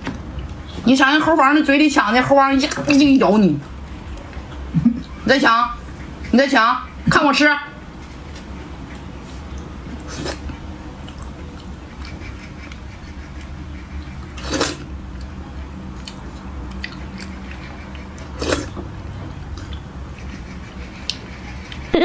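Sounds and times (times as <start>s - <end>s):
steady low hum: 0.0s - 22.0s
soft chewing clicks: 10.4s - 20.3s.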